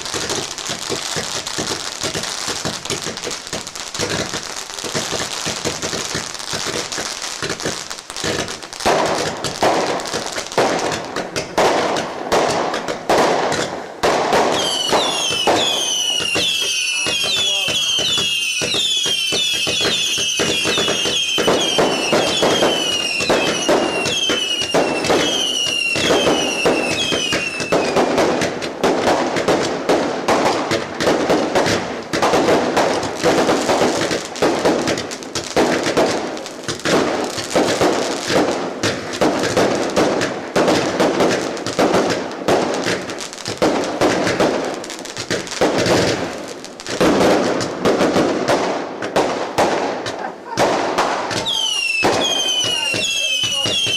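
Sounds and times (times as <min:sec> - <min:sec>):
fireworks bangs and crackling: 0:00.0 - 0:53.9
falling firework whistles: 0:13.6 - 0:28.4, 0:50.9 - 0:53.9.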